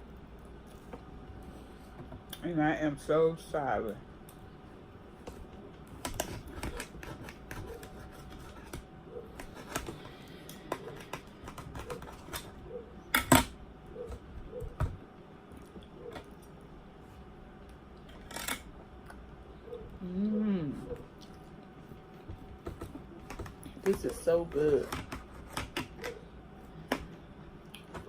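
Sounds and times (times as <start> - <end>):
chewing: 20.8 - 22.9.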